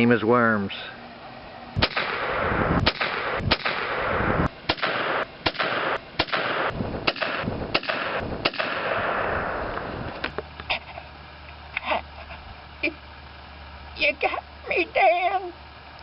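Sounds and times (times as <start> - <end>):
gunshots with rolling echo: 1.8 - 9.9.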